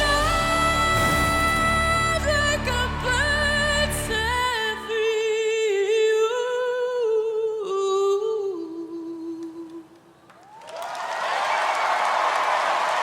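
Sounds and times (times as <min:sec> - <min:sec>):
audience applause and cheering: 0:10.3 - 0:13.0.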